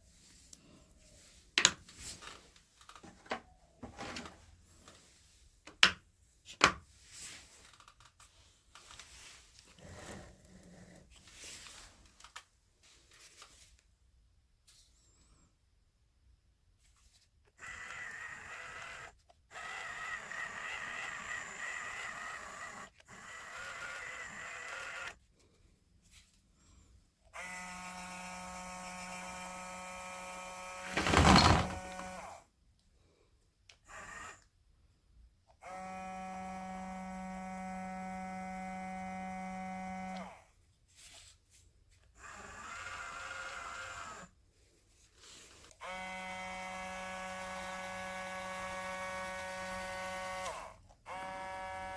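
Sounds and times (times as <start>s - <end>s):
small electric motor buzzing: 17.6s - 25.2s, 35.6s - 40.4s, 45.8s - 51.9s.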